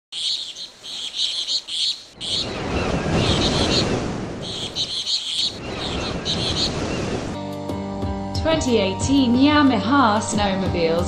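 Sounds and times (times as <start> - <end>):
birds chirping: 0.1 - 7.4.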